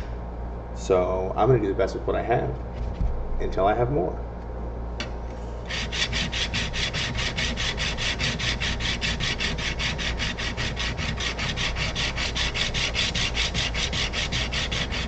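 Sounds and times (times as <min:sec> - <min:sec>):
chisel scraping on sharpening stone: 0:05.7 - 0:15.0.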